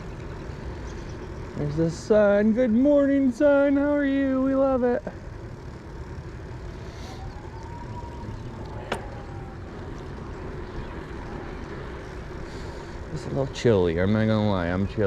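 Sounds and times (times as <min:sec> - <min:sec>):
faint whine: 0:00.0 - 0:15.0
wind and road rumble: 0:00.0 - 0:15.0.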